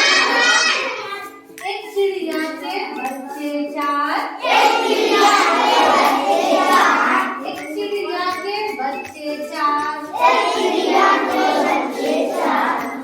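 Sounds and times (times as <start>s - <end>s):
children chanting in unison: 0.0s - 1.2s, 4.4s - 7.4s, 10.1s - 13.0s.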